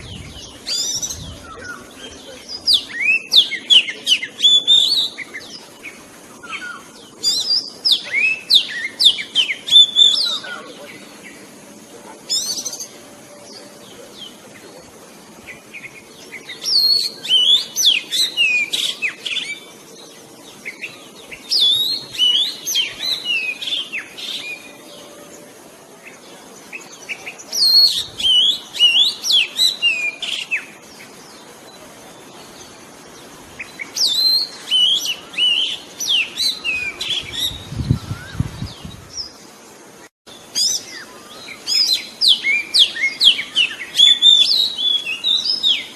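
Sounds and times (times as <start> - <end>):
bird singing whistles and chirps: 0.0 - 10.7, 15.8 - 19.7, 20.6 - 25.4, 26.7 - 31.1, 33.6 - 39.4, 40.3 - 45.9.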